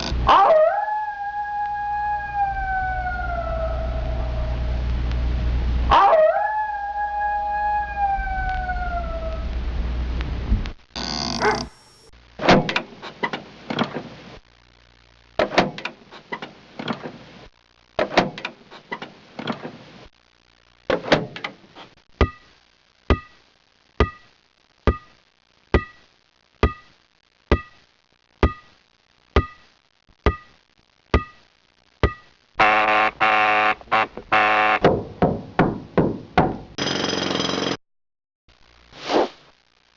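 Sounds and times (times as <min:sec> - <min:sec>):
sharp knocks: 0:34.8 - 0:36.8.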